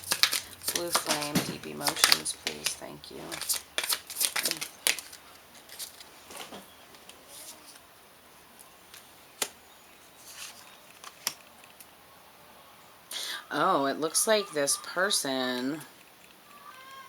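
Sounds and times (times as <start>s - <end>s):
cards rustling: 0.0s - 7.8s, 8.9s - 11.9s.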